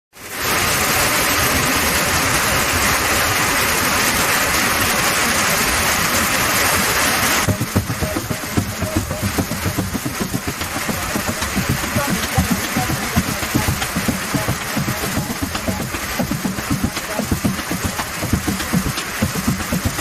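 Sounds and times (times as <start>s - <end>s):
heavy rain hissing: 0.2s - 20.0s
irregular low thumps: 7.5s - 20.0s.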